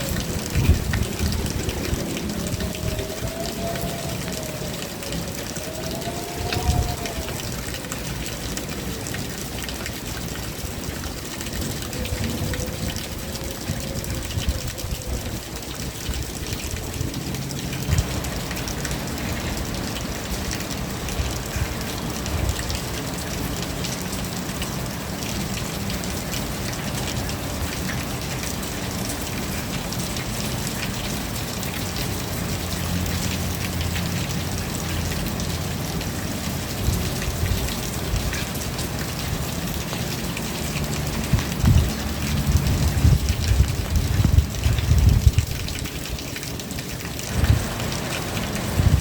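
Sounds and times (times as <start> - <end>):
low rumble: 0.0 - 7.6
rain falling: 0.0 - 49.0.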